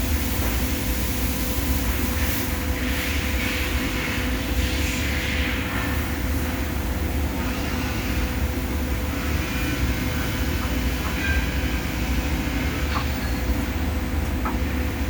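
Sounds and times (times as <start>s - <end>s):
industrial machinery rumbling: 5.7s - 15.0s.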